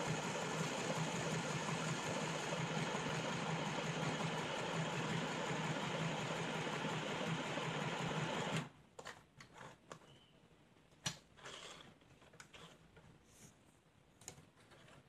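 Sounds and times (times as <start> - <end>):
sewing machine stitching: 0.0 - 8.7.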